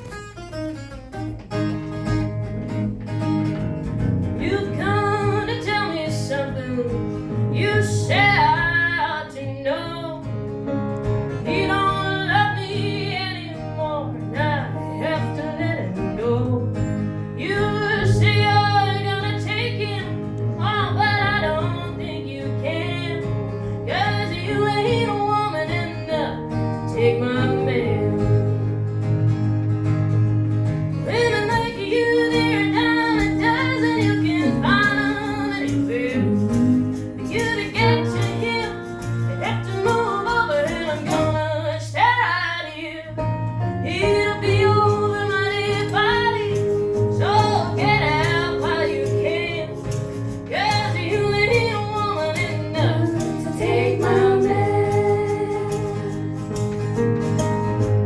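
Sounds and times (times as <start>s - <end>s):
guitar and plucked strings: 0.0s - 58.0s
person singing: 44.0s - 56.4s.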